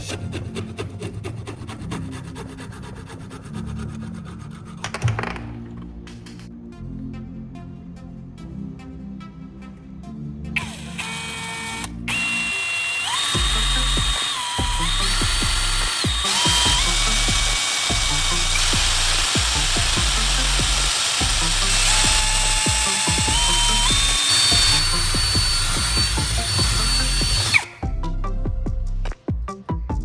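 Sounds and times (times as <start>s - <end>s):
background music: 0.0s - 30.0s
power tool whirring: 10.6s - 27.8s.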